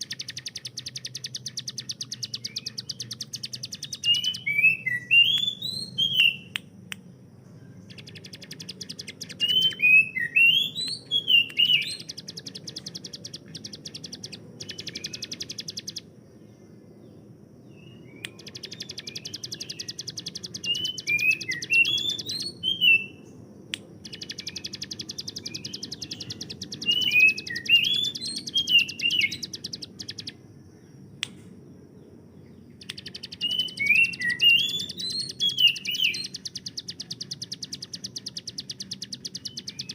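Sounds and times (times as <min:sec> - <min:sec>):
bird rattling trill: 0:00.0 - 0:04.5, 0:07.9 - 0:16.0
bird chirps: 0:00.0 - 0:39.9
faint low hum: 0:00.0 - 0:39.9.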